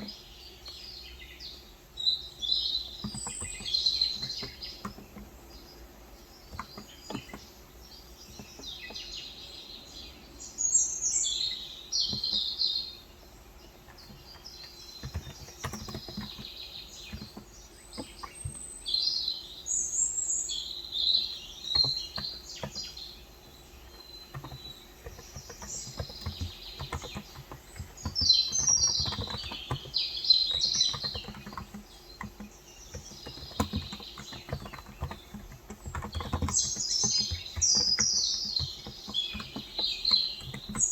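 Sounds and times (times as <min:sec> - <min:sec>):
birds chirping: 0:00.0 - 0:40.9
soft keyboard keystrokes: 0:03.0 - 0:05.6, 0:06.4 - 0:07.5, 0:13.9 - 0:18.6, 0:21.7 - 0:23.0, 0:23.9 - 0:40.9.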